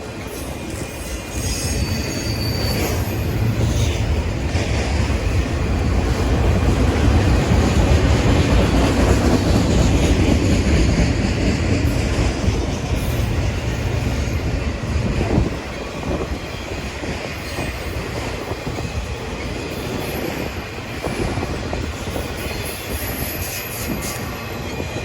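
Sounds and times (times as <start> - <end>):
train wheels rumbling on rails: 0.0 - 25.0
high wheel squeal: 0.3 - 4.1, 22.2 - 25.0.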